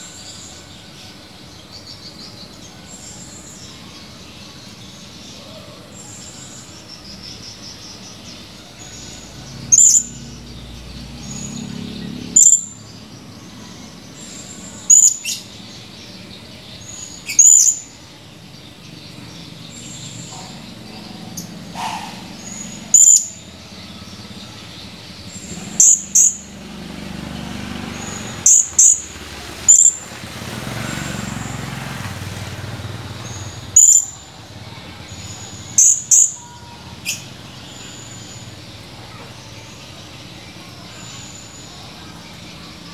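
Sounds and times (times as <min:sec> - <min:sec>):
parrot high-pitched calls: 0:14.9 - 0:15.4, 0:17.2 - 0:17.9, 0:21.4 - 0:23.4, 0:28.1 - 0:29.1, 0:29.7 - 0:30.0, 0:35.7 - 0:37.3.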